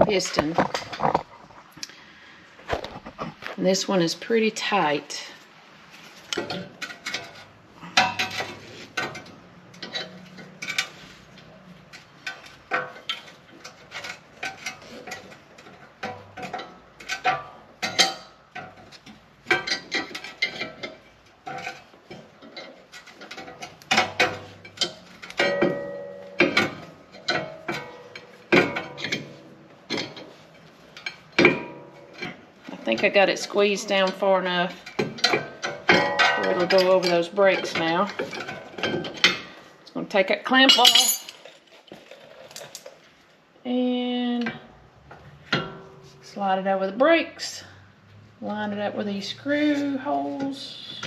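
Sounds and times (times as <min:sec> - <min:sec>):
ringing metal clank: 0:35.9 - 0:37.0.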